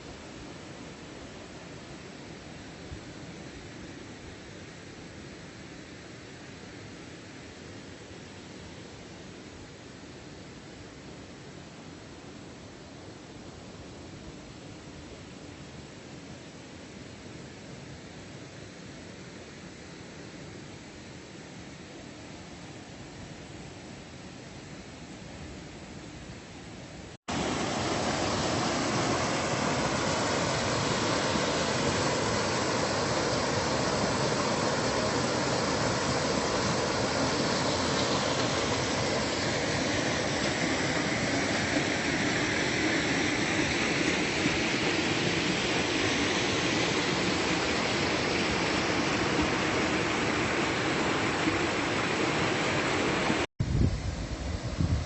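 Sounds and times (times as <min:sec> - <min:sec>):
waterfall rushing: 0:27.3 - 0:53.5.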